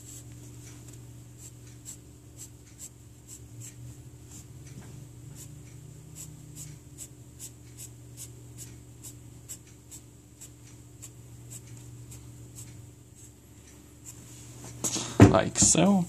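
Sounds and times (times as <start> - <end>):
steady low hum: 0.0 - 16.0
pencil scratching on paper: 1.4 - 4.5, 5.4 - 5.6, 6.2 - 11.9.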